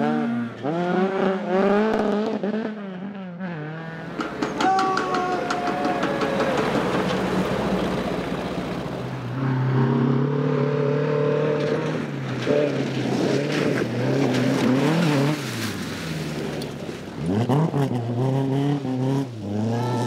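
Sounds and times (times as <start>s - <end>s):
rally car engine revving: 0.0s - 20.0s
rushing noise: 4.0s - 9.4s.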